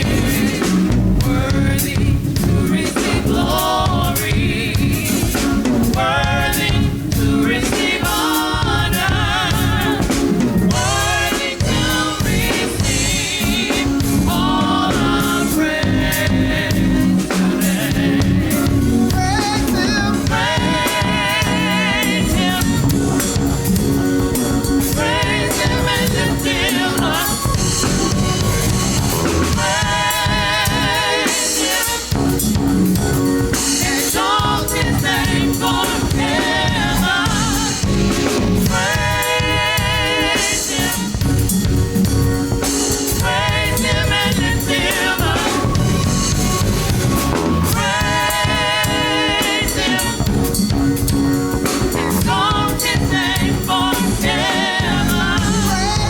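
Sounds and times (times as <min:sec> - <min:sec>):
bass: 0:00.0 - 0:56.0
drum kit: 0:00.0 - 0:56.0
person singing with vibrato: 0:19.1 - 0:23.0.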